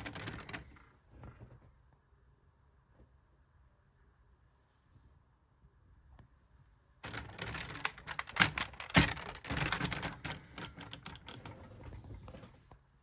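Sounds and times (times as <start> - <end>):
plastic toy parts clicking: 0.0 - 0.7, 7.0 - 11.8.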